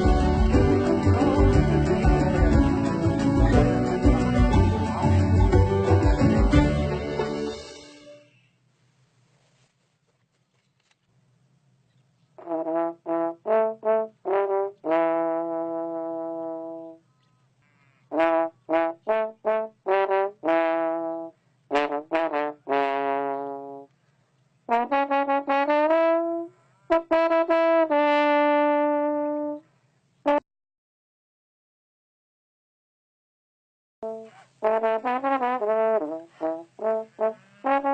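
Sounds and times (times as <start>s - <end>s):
trombone-like brass melody: 0.0s - 8.2s, 12.4s - 17.0s, 18.1s - 23.9s, 24.7s - 29.6s, 34.0s - 37.9s.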